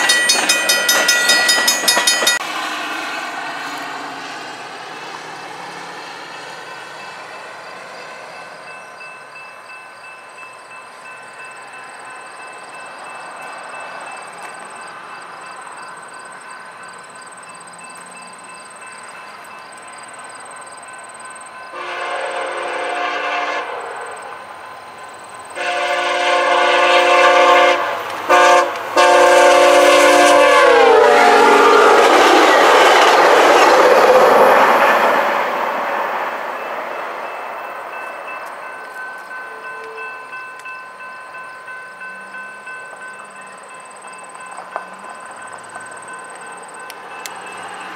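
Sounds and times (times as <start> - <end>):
train rushing by: 0.0 - 47.9
train air horn blasts: 21.7 - 24.2, 25.6 - 32.9.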